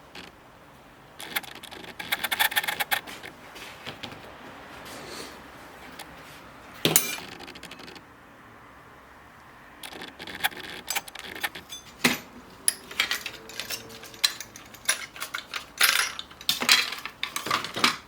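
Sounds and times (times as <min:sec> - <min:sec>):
small metal objects clinking: 0:10.9 - 0:18.0.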